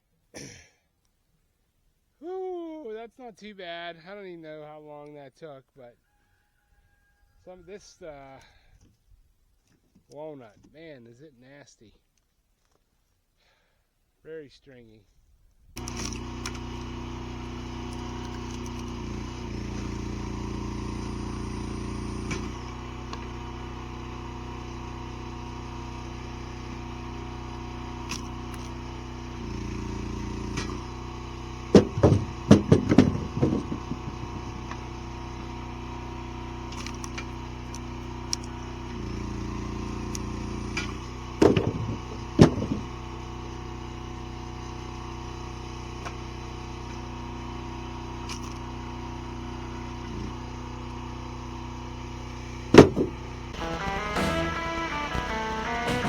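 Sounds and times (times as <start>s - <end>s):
firewood processor engine running: 15.8s - 56.0s.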